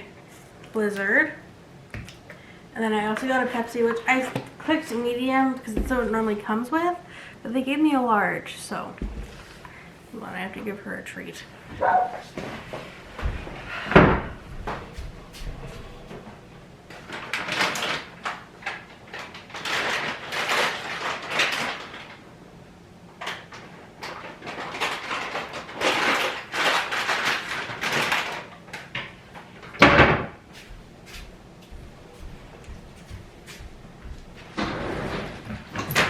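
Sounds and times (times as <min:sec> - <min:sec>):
rustling and crinkling: 0:11.4 - 0:22.2, 0:23.2 - 0:36.0.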